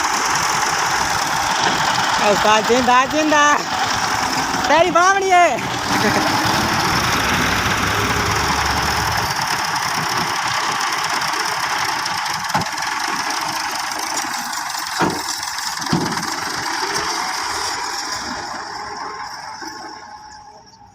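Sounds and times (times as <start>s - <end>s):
diesel tractor engine running: 0.0s - 20.9s.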